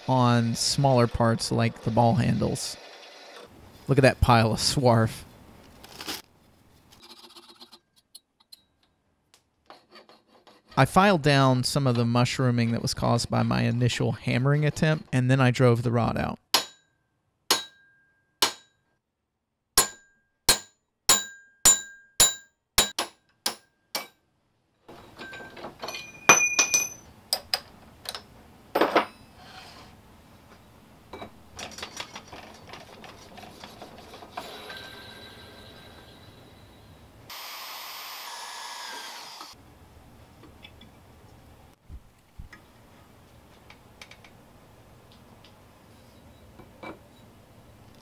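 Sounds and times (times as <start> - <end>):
hammer striking metal rod: 16.5 - 18.8, 19.8 - 24.2
metallic clinks and knocks: 25.0 - 27.7.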